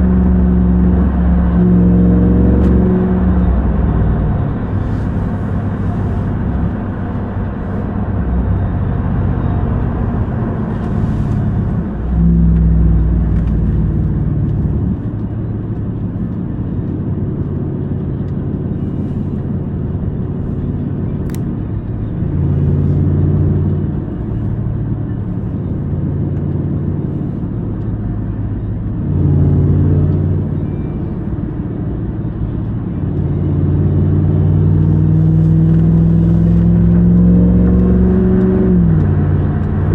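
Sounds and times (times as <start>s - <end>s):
pickup truck engine accelerating: 0.0s - 17.1s.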